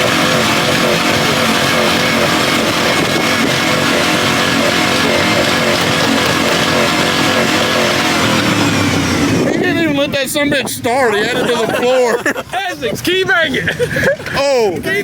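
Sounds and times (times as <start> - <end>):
diesel truck engine revving: 0.0 - 10.6.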